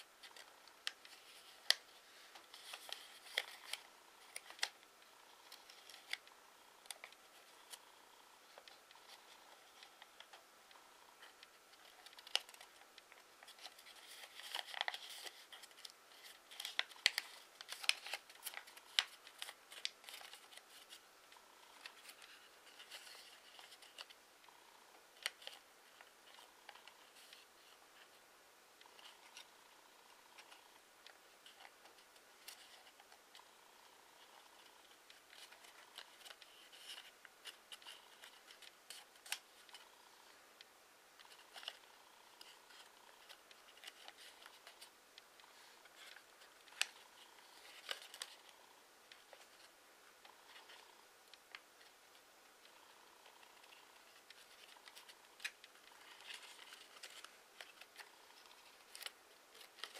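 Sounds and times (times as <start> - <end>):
paper rustling and crinkling: 0.0 - 4.9, 11.2 - 21.0, 21.7 - 24.2, 34.2 - 39.8, 42.4 - 51.9, 53.4 - 59.9.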